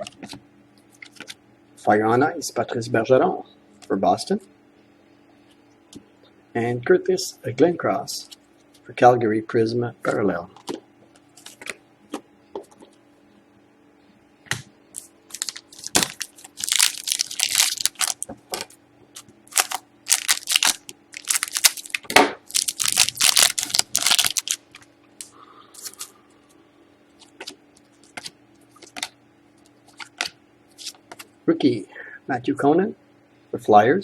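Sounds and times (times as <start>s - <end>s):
faint steady hum: 0.0s - 34.0s
wrappers crinkling and tearing: 15.0s - 26.1s.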